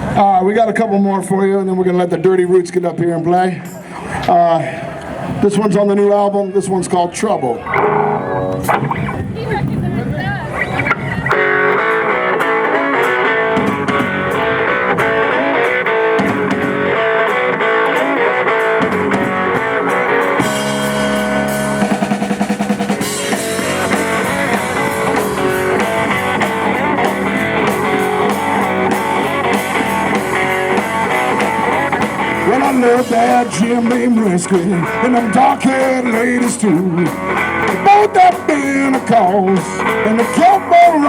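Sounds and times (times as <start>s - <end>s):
live blues-rock band: 0.0s - 2.9s, 7.6s - 41.0s
electric guitar: 6.3s - 41.0s
drum kit: 11.3s - 41.0s.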